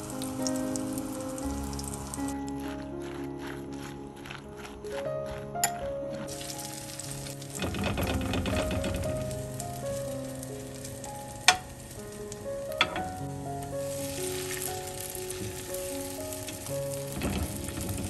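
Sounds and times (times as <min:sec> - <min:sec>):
butter sizzling in a pan: 0:06.2 - 0:18.0.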